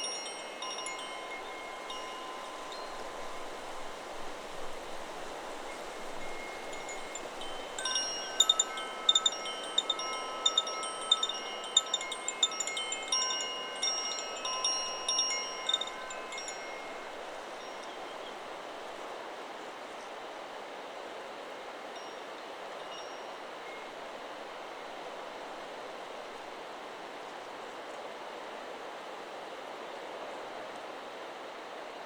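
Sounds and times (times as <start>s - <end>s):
wind chime ringing: 0.0s - 18.3s
wind in trees: 0.0s - 32.0s.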